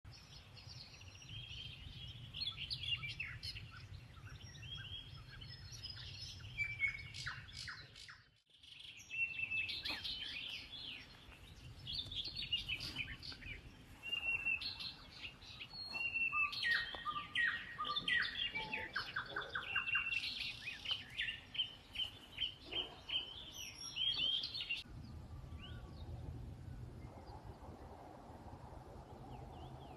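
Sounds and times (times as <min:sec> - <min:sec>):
songbirds singing and chirping: 0:00.1 - 0:29.9
low steady rumble: 0:24.8 - 0:29.9.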